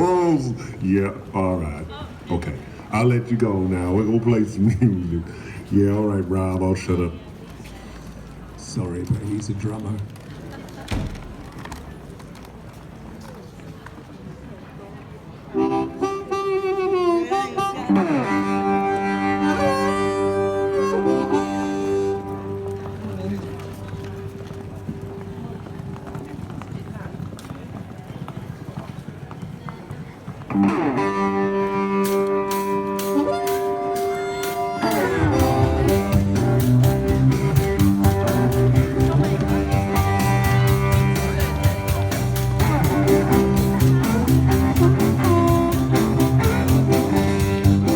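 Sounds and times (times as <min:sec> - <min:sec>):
bass and drum groove: 0:10.9 - 0:12.3, 0:32.0 - 0:47.9
instrumental music with held notes: 0:15.6 - 0:24.7, 0:30.5 - 0:47.9
band playing: 0:15.6 - 0:25.5, 0:30.5 - 0:47.9
drum ticking beat: 0:34.4 - 0:47.9.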